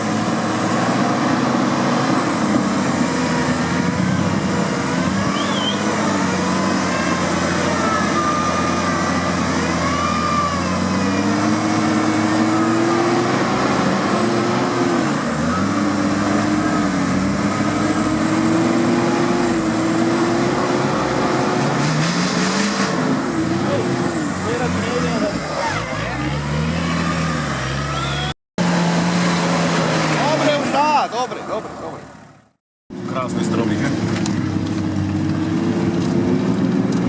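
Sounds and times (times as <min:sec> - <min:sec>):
off-road vehicle engine revving: 0:00.0 - 0:37.0.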